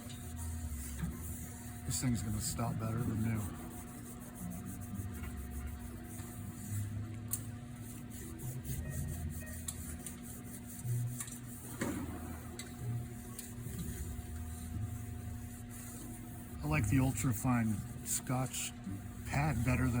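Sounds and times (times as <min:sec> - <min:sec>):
scouring pad scraping brake drum: 0:00.2 - 0:06.4, 0:13.4 - 0:20.0.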